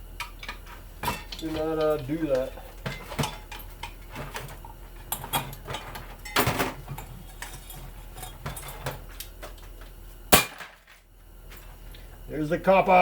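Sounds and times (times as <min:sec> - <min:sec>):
faint low hum: 0:00.0 - 0:13.0
hand tools clinking on metal: 0:00.2 - 0:09.6.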